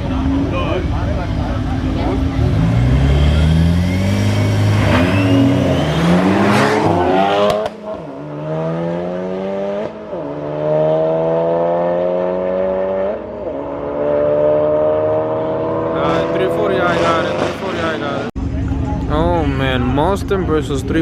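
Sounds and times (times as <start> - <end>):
car engine accelerating hard: 0.0 - 19.8.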